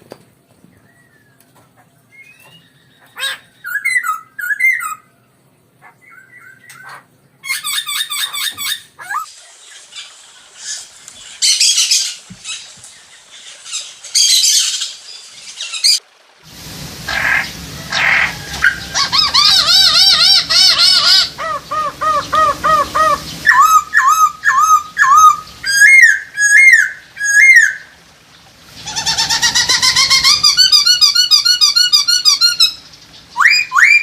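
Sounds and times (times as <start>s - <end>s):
bird whistled calls: 2.1s - 5.1s, 17.1s - 27.9s, 28.9s - 34.0s
bird harsh chattering: 28.8s - 34.0s.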